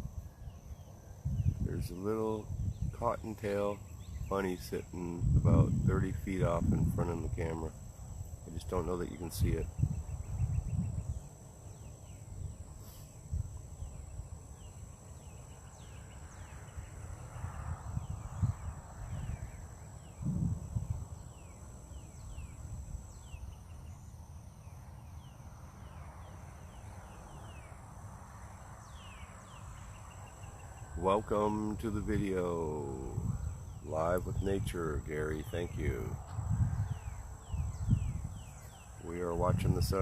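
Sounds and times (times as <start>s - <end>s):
insect drone: 0.0s - 40.0s
birds calling: 28.8s - 40.0s.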